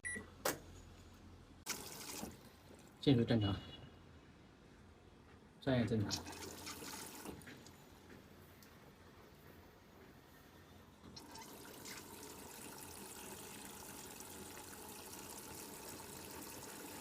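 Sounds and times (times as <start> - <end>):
water running into washing machine: 1.7 - 2.9, 6.1 - 7.7, 11.2 - 17.0.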